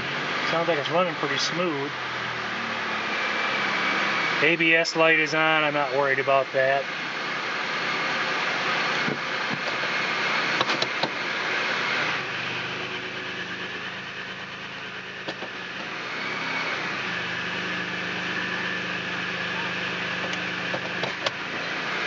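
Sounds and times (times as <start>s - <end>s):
car engine idling: 0.0s - 16.2s.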